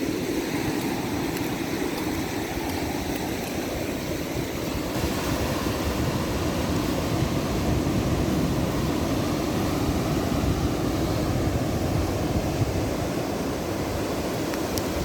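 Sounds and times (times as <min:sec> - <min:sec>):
ocean surf rushing: 0:00.0 - 0:15.0.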